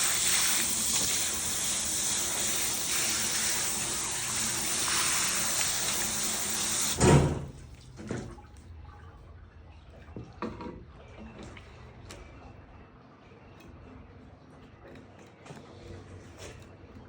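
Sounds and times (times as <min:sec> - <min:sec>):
water running: 0:00.0 - 0:08.6
loud thump: 0:07.0 - 0:07.6.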